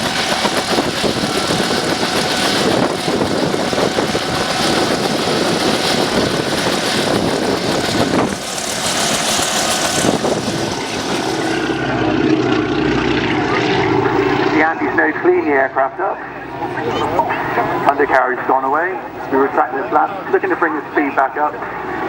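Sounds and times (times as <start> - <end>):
propeller airplane engine drone: 0.0 - 22.0.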